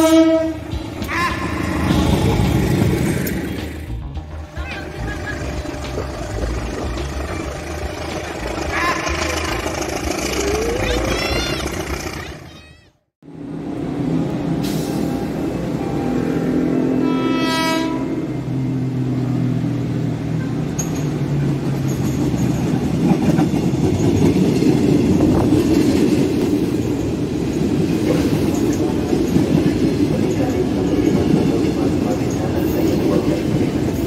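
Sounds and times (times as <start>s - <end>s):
train horn: 0.0s - 1.8s, 8.6s - 9.6s, 15.8s - 18.5s
train wheels clattering on rails: 0.6s - 4.0s, 20.6s - 34.0s.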